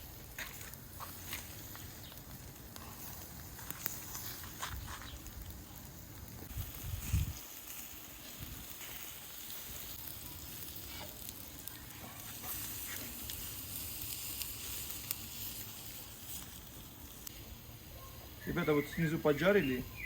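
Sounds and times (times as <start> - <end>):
small crackles and pops: 0.0 - 19.0
meat sizzling over charcoal: 0.0 - 20.0.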